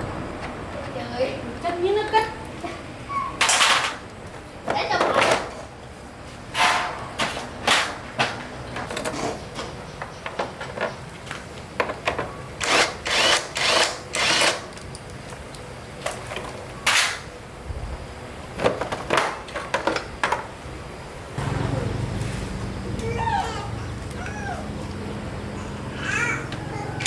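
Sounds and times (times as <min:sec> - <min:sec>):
hand tools clicking and clanking: 0:03.2 - 0:05.8, 0:06.5 - 0:17.3.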